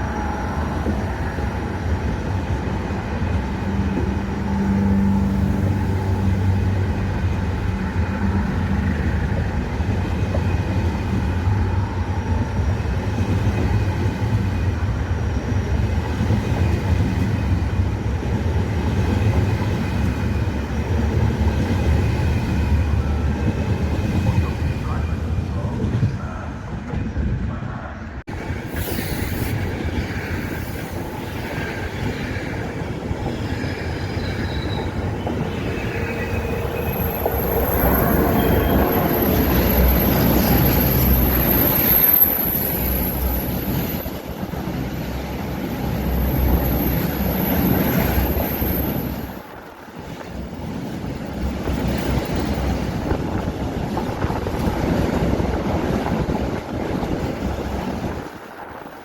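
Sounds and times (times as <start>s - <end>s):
train wheels rumbling on rails: 0.0s - 59.0s
high-pitched squeal: 28.4s - 44.2s.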